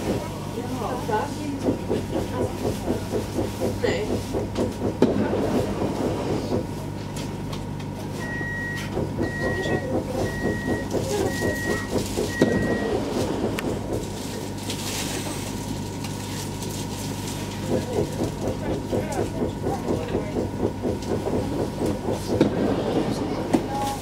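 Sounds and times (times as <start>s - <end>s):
train electrical hum pulsing: 0.0s - 24.0s
door-closing warning beeps: 8.2s - 13.4s.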